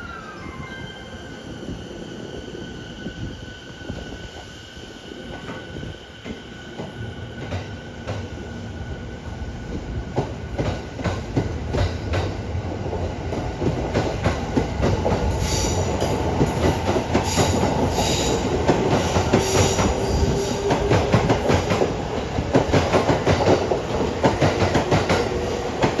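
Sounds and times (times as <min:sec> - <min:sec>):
train wheel squeal: 0:00.0 - 0:07.6, 0:15.3 - 0:21.8.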